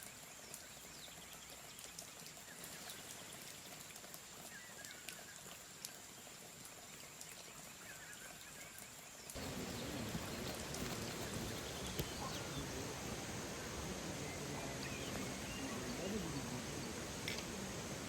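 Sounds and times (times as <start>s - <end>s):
flowing water rushing: 0.0s - 18.0s
bird chirps: 9.4s - 18.0s
high insect drone: 9.4s - 18.0s.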